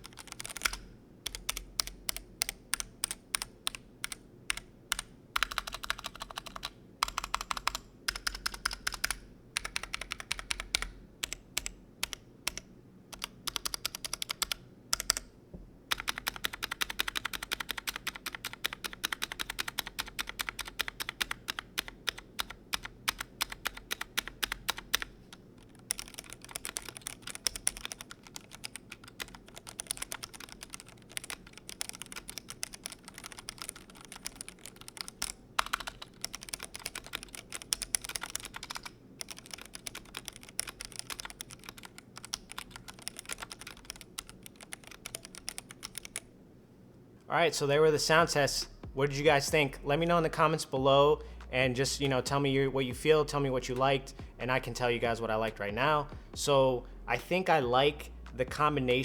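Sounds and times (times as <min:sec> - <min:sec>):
mechanical keyboard typing: 0:00.0 - 0:15.3, 0:15.9 - 0:46.3.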